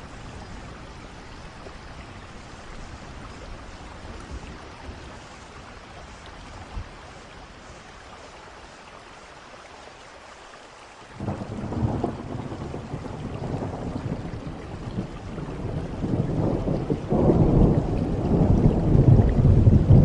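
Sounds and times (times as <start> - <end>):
steady rain falling: 0.0 - 20.0
thunder rumbling: 11.2 - 20.0.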